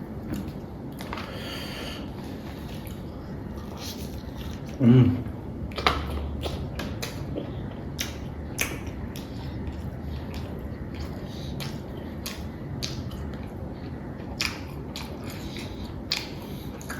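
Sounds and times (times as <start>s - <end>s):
low steady hum: 0.0s - 16.9s
person chewing with mouth clicks: 5.6s - 16.9s.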